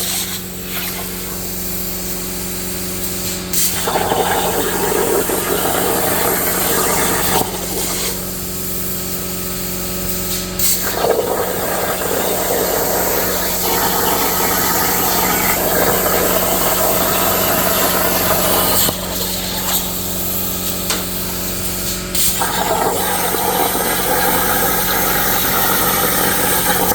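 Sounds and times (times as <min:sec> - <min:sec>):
plasma cutter hissing: 0:00.0 - 0:26.9
electrical hum: 0:10.8 - 0:26.9.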